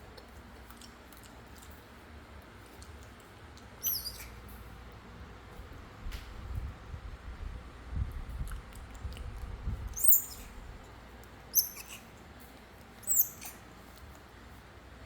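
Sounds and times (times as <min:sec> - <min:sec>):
baby monkey squeaking: 0:03.8 - 0:04.4, 0:10.0 - 0:10.6, 0:11.5 - 0:12.0, 0:13.0 - 0:13.6.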